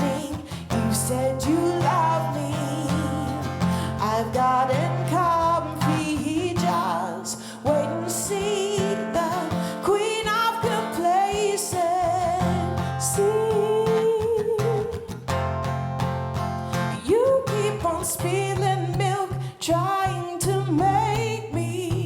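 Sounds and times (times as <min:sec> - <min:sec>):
woman singing with vibrato: 0:00.0 - 0:15.2, 0:16.9 - 0:22.0
strummed guitar chords: 0:00.0 - 0:17.0.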